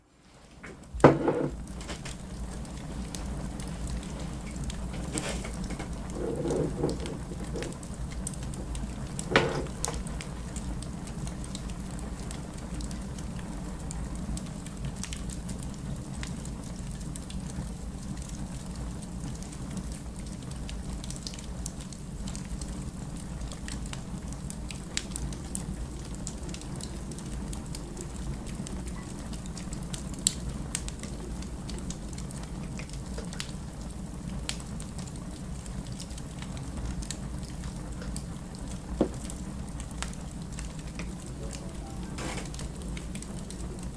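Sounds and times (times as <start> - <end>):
wood fire crackling and popping: 0.1 - 43.9
loud knock: 0.6 - 1.6, 9.3 - 10.0.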